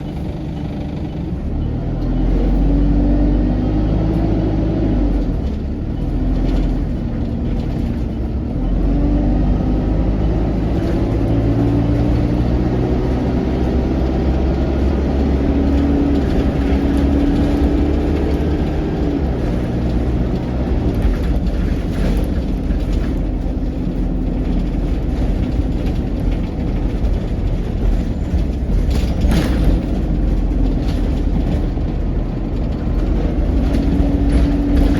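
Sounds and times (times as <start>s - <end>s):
bus diesel engine pulling away: 0.0s - 34.9s.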